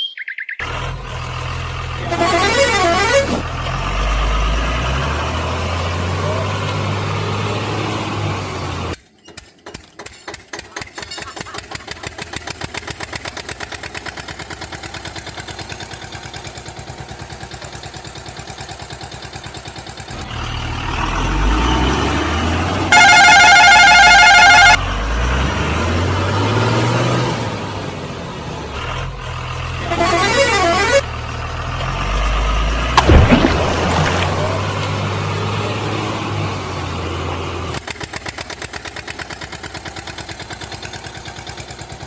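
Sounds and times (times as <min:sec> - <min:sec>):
truck engine starting and running: 0:00.0 - 0:42.0
truck horn wavering: 0:01.8 - 0:05.2, 0:21.3 - 0:25.0, 0:29.7 - 0:31.4.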